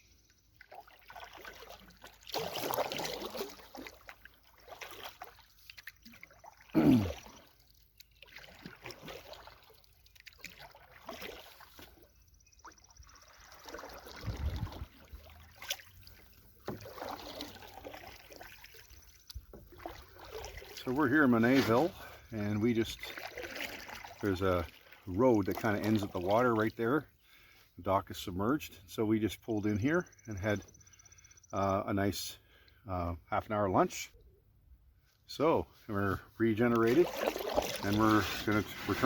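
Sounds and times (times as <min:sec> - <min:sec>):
paddle splashing water: 0:00.4 - 0:27.8, 0:35.7 - 0:39.0
paddle thud: 0:14.0 - 0:18.6.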